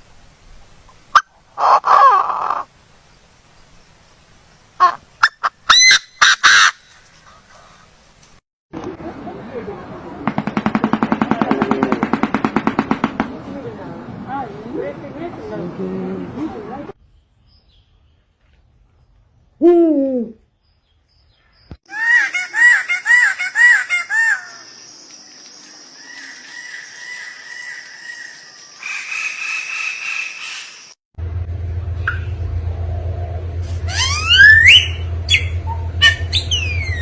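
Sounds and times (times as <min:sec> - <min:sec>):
falling animal call: 0:01.2 - 0:02.7, 0:33.6 - 0:37.0
low steady hum: 0:31.2 - 0:37.0
high-pitched trill: 0:33.6 - 0:37.0.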